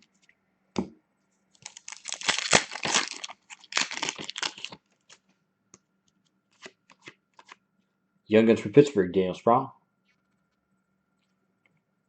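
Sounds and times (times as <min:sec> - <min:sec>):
foil wrapper tearing and crinkling: 0:01.6 - 0:05.1.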